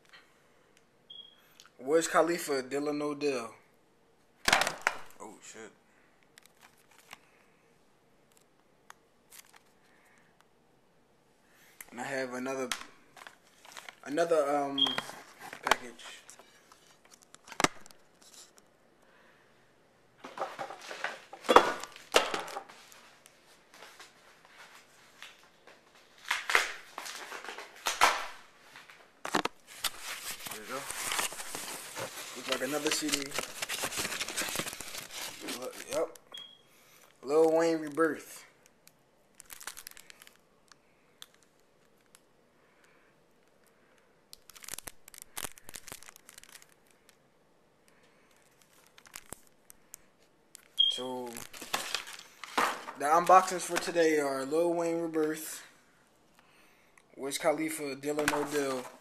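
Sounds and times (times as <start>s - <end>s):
packaging crinkling and tearing: 6.4s - 7.3s, 9.3s - 9.8s, 12.6s - 14.2s, 26.1s - 36.2s, 39.3s - 42.3s, 44.4s - 47.2s, 48.2s - 53.9s.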